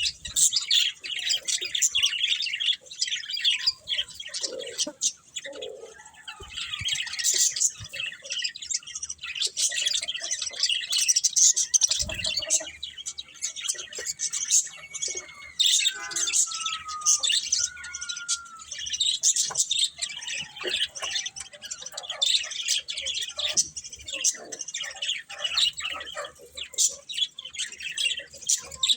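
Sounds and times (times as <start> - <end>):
budgerigars chirping: 0.0 - 28.9
descending bird whistles: 14.6 - 18.8.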